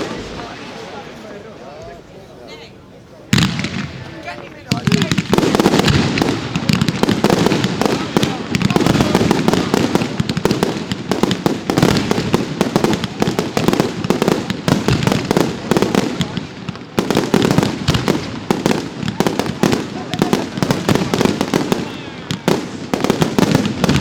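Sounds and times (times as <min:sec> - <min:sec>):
fireworks bangs and crackle: 0:00.0 - 0:02.0, 0:03.3 - 0:24.0.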